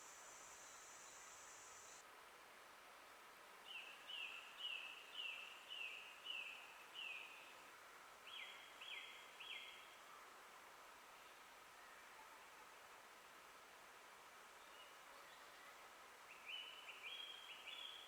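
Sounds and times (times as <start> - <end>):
faint forest ambience hiss: 0.0 - 18.0.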